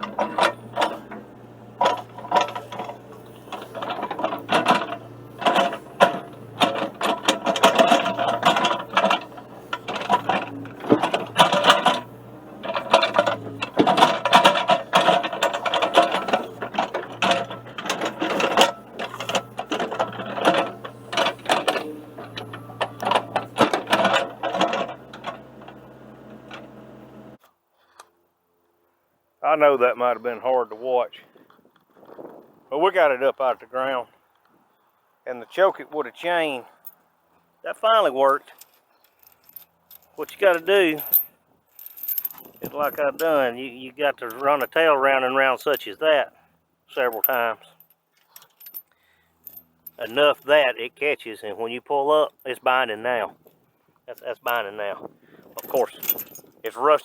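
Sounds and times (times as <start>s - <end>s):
chain and metal clanking: 0.0s - 27.4s, 38.4s - 44.9s, 47.0s - 50.7s, 54.2s - 57.0s
excavator engine under load: 0.0s - 27.4s, 38.9s - 47.8s, 49.0s - 51.0s, 52.4s - 57.0s.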